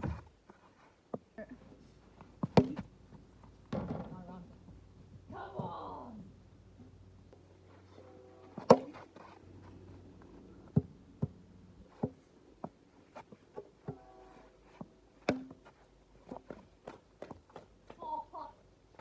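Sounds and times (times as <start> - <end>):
sharp knocks and thuds: 0.0 - 0.3, 2.2 - 4.3.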